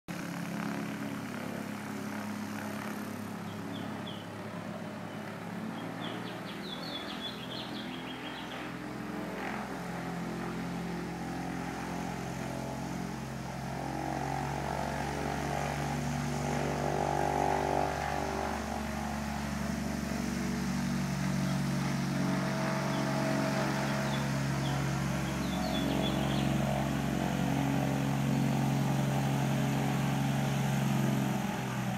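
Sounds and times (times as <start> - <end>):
engine running: 0.1 - 31.9.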